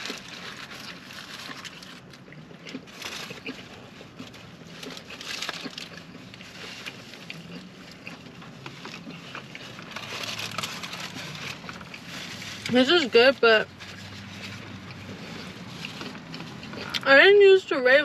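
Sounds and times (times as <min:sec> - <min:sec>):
low steady hum: 0:00.0 - 0:18.0
chewing with wet mouth clicks: 0:01.5 - 0:09.9, 0:14.8 - 0:17.1.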